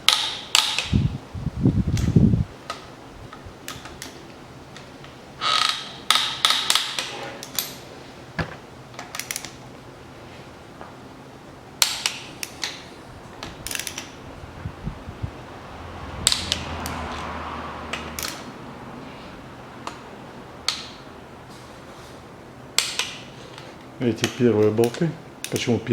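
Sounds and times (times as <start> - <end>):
torque wrench ratcheting: 13.6 - 14.1.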